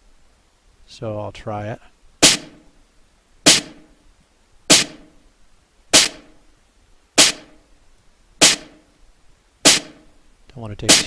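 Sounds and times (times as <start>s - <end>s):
snare drum hit with reverb: 2.2s - 2.7s, 3.5s - 3.9s, 4.7s - 5.2s, 5.9s - 6.4s, 7.2s - 7.6s, 8.4s - 8.8s, 9.6s - 10.1s.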